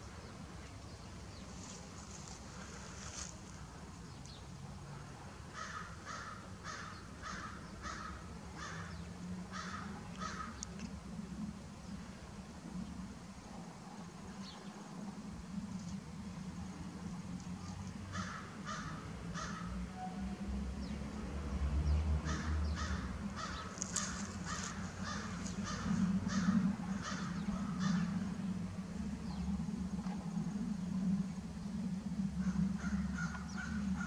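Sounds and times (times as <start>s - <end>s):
low steady hum: 0.0s - 34.0s
crow-like bird harsh calls: 5.5s - 10.7s, 18.1s - 20.2s, 22.2s - 28.5s, 32.4s - 34.0s.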